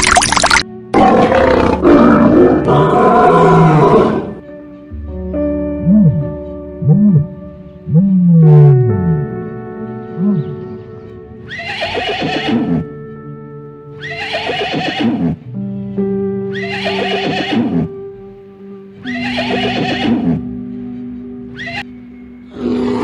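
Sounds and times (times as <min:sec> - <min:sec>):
background music of held notes: 0:00.6 - 0:23.0
horse whinnying: 0:01.2 - 0:04.4, 0:11.5 - 0:12.9, 0:14.0 - 0:15.4, 0:16.5 - 0:17.9, 0:19.1 - 0:20.5, 0:21.5 - 0:21.9.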